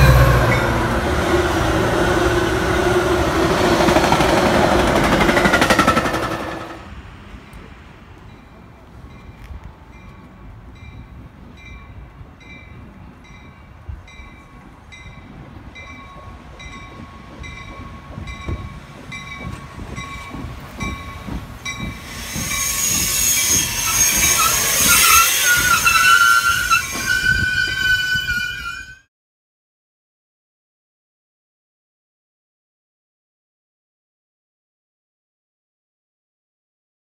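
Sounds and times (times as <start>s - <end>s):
train brakes squealing: 0.0s - 6.8s, 14.2s - 29.1s
train pulling in with rush: 0.0s - 29.1s.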